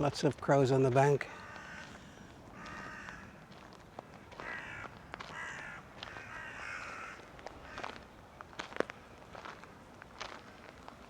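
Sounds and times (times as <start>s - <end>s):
crows cawing: 1.3s - 3.5s, 4.1s - 8.0s.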